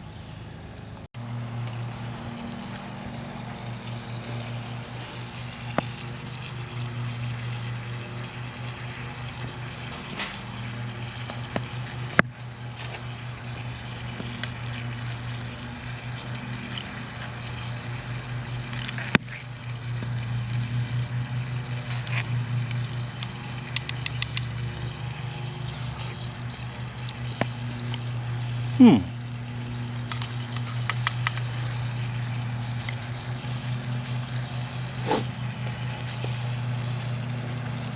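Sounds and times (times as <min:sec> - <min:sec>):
low pulsing hum: 0:00.0 - 0:37.9
wood crackling: 0:03.5 - 0:36.7
bacon sizzling in a pan: 0:04.8 - 0:28.7.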